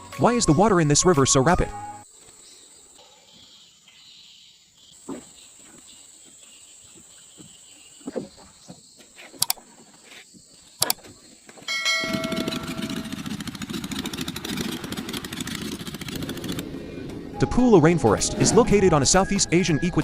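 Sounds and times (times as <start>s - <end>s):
motor engine running loudly: 12.0s - 17.2s.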